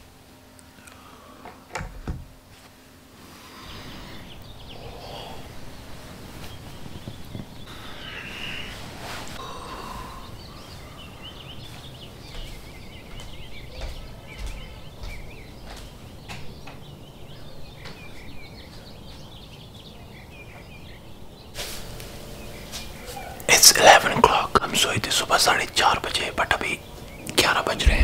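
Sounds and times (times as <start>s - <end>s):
birds chirping: 2.8s - 28.0s
rustling noise: 5.7s - 7.7s, 8.4s - 9.4s.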